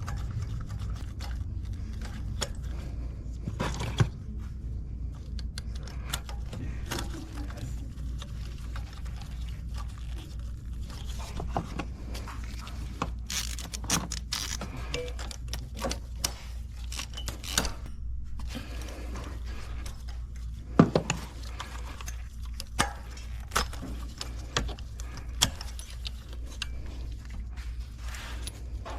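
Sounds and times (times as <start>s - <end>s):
steady low hum: 0.0s - 28.9s
hand tools clicking and scraping: 10.8s - 28.9s.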